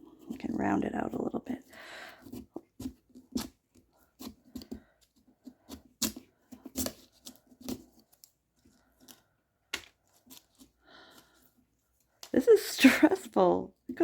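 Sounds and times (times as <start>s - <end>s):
carving tool scraping pumpkin: 0.0s - 8.2s.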